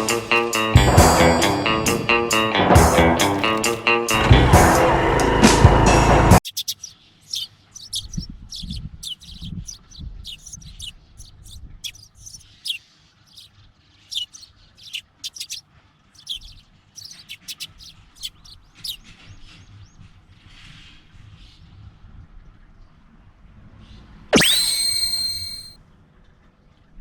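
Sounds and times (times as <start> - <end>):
intro music: 0.0 - 6.4
small birds chirping: 6.4 - 19.5, 24.4 - 25.8.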